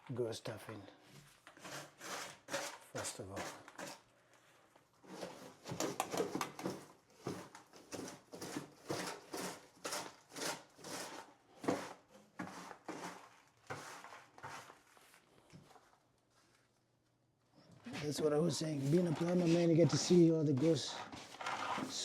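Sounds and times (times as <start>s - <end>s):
brush sweeping floor: 11.0s - 15.3s, 17.9s - 22.0s.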